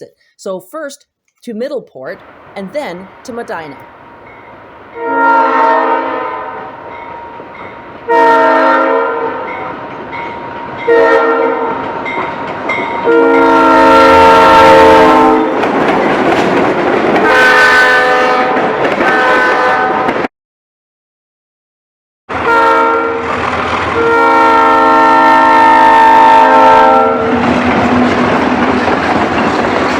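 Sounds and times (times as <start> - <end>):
passing train rumble: 2.2 - 20.3, 22.3 - 29.9
locomotive air horn blasts: 5.0 - 6.8, 8.1 - 9.6, 10.9 - 11.8, 13.1 - 15.5, 17.2 - 20.1, 22.3 - 23.3, 24.0 - 27.4.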